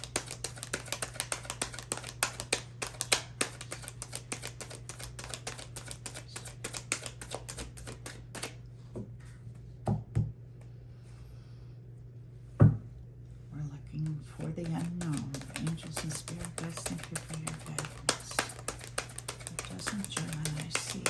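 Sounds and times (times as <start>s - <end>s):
cards being shuffled: 0.0s - 8.6s, 14.4s - 21.0s
low steady hum: 0.0s - 21.0s.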